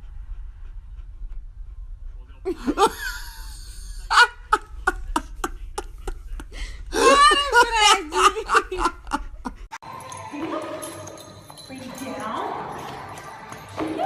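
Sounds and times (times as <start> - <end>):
low rumble: 0.0 - 2.4
person laughing: 2.5 - 9.7.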